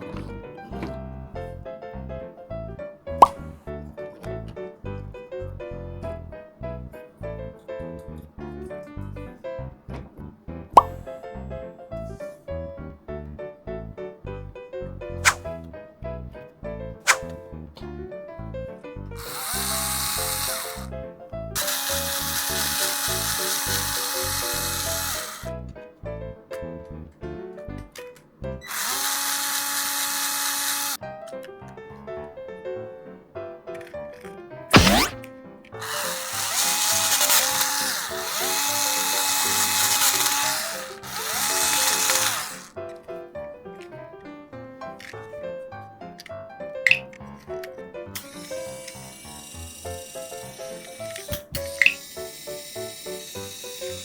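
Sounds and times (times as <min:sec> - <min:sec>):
power drill whirring: 0:19.2 - 0:20.9, 0:21.6 - 0:25.5, 0:28.7 - 0:31.0, 0:35.8 - 0:42.7, 0:48.2 - 0:54.0.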